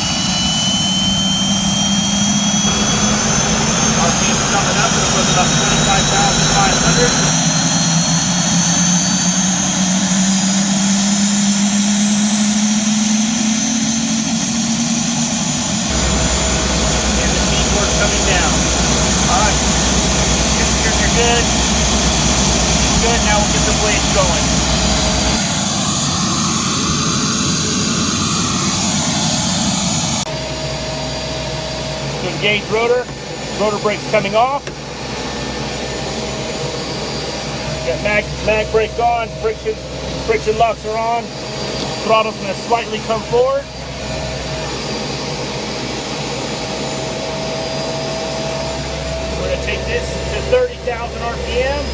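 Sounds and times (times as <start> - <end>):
steady single-tone hum: 0.0 - 8.6, 15.6 - 25.4, 30.2 - 51.9
helicopter turbine whine: 0.0 - 51.9.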